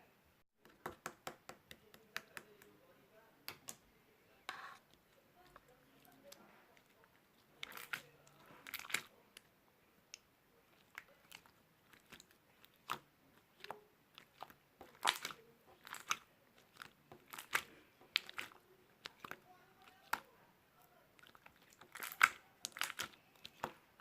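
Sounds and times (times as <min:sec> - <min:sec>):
crunchy chewing: 0:10.7 - 0:20.3, 0:21.1 - 0:24.0.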